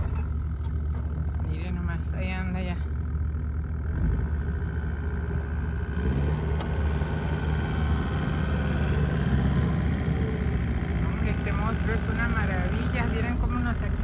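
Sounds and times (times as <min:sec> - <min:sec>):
snow-clearing machine engine: 0:00.0 - 0:14.0.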